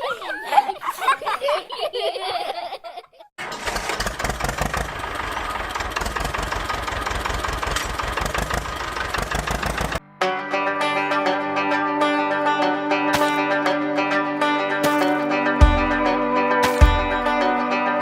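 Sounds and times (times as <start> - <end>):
tractor engine running: 3.4 - 10.0.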